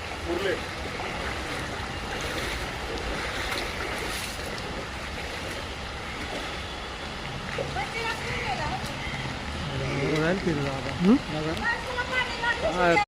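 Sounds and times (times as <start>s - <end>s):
heavy rain: 0.0s - 13.0s
running water: 0.0s - 13.0s.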